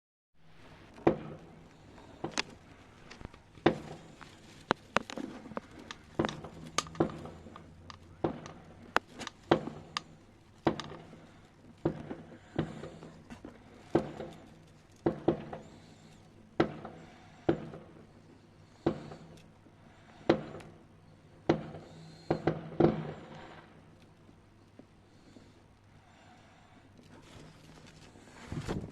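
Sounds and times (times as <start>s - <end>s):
fireworks bangs: 0.6s - 19.4s, 20.1s - 20.7s, 21.5s - 23.8s.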